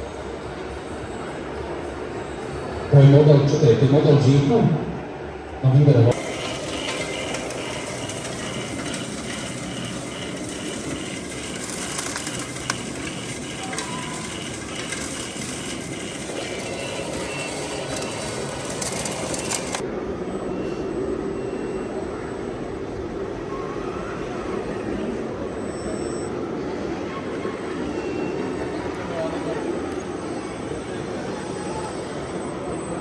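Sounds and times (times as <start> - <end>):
model construction machines running: 6.1 - 20.4, 21.3 - 33.0
high beeps: 6.1 - 22.6, 25.0 - 26.5, 27.8 - 33.0.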